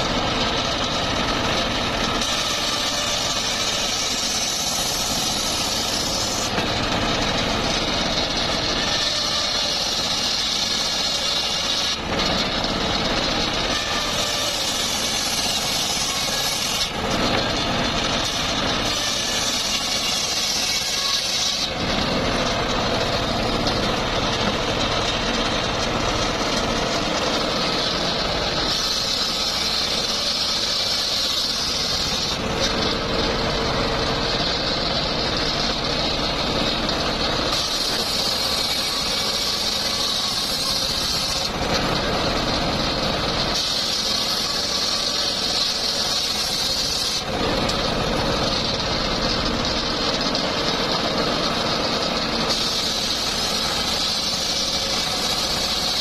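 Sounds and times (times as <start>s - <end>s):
saw blade whining: 0.0s - 56.0s
sawmill motor droning: 0.0s - 56.0s.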